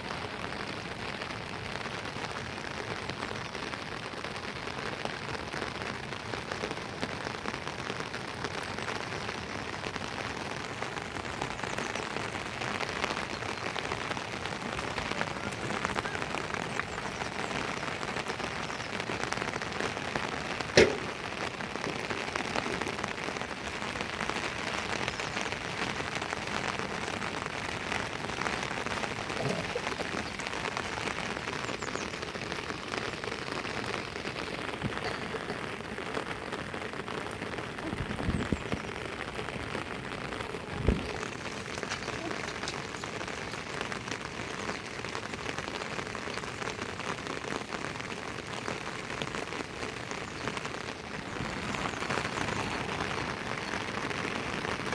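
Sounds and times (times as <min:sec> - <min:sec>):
steady rain falling: 0:00.0 - 0:54.9
sharp knock: 0:20.8 - 0:21.1.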